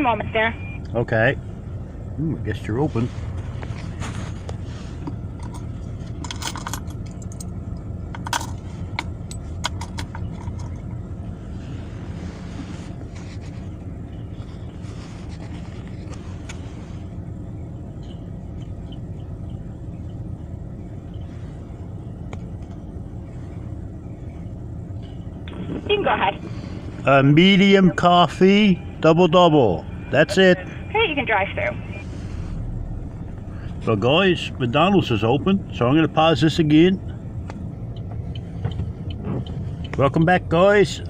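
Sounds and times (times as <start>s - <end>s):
car engine idling: 0.0s - 41.0s.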